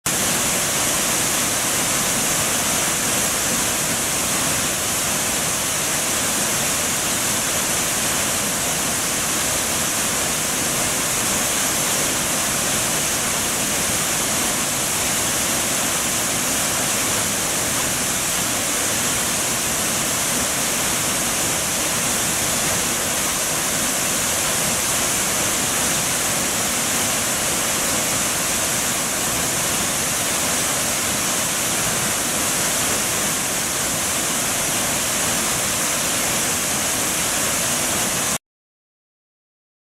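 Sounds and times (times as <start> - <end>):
waterfall rushing: 0.1 - 38.4.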